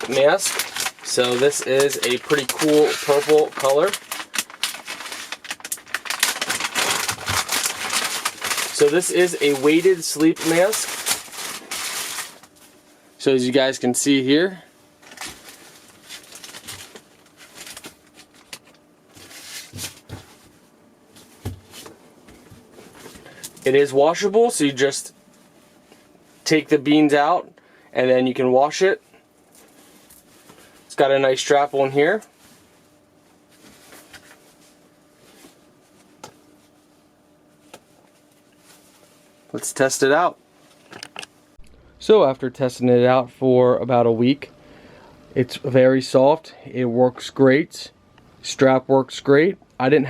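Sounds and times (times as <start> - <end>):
fabric rustling: 0.0 - 12.8
faint steady hum: 0.0 - 50.0.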